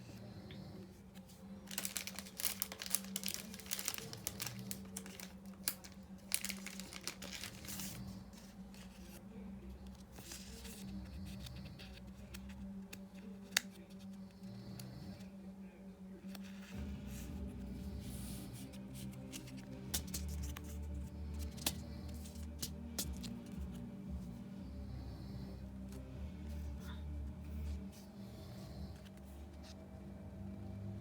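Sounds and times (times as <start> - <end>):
foil wrapper crinkling and tearing: 1.6 - 8.1.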